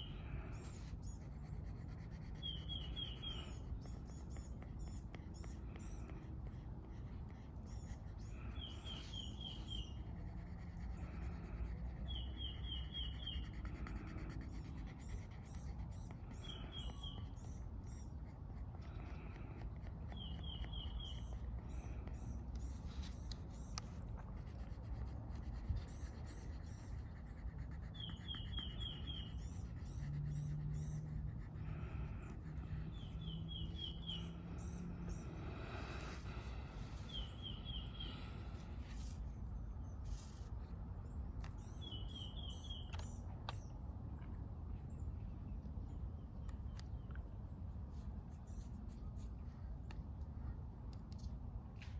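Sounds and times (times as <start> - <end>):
low outdoor rumble: 0.0 - 51.9
coloring scratching on paper: 0.6 - 33.8.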